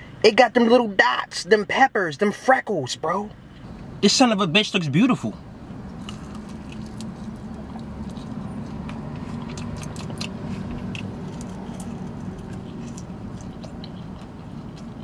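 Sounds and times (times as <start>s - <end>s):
low car cabin hum: 0.0s - 15.0s
person chewing chicken wing: 5.9s - 15.0s
wet mouth clicks: 6.1s - 14.9s.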